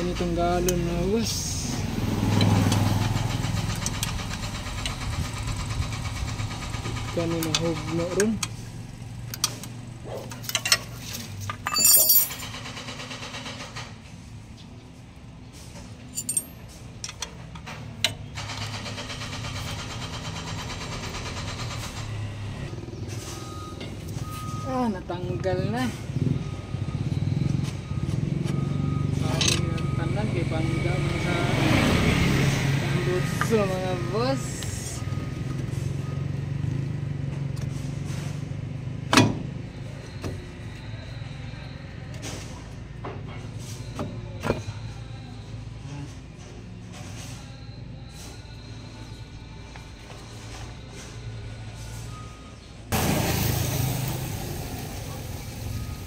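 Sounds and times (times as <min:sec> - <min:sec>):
metal tool clinks: 0:11.4 - 0:12.6, 0:16.1 - 0:16.8.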